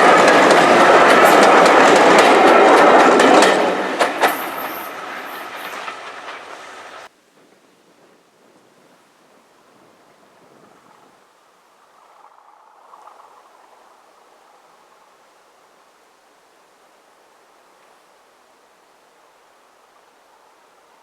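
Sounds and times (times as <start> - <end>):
train wheels clicking over rails: 0.0 - 7.1
faint outdoor background noise: 4.0 - 21.0.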